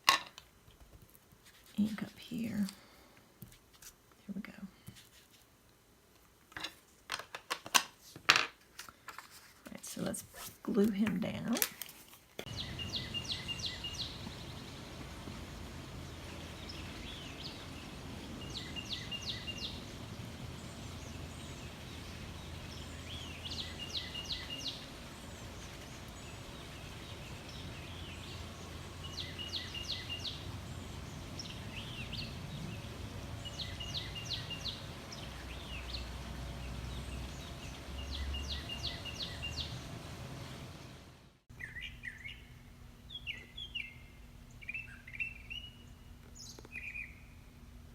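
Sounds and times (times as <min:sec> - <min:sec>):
songbird singing high notes: 0:12.5 - 0:14.9, 0:16.4 - 0:20.0
bird chirps: 0:12.5 - 0:15.1, 0:16.0 - 0:36.1, 0:36.9 - 0:39.9, 0:41.5 - 0:47.4.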